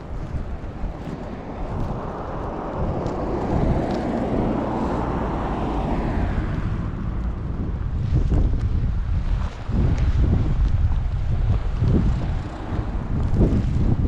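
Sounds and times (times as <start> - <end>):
wind rumbling on microphone: 0.0 - 14.0
car driving past: 2.2 - 8.2.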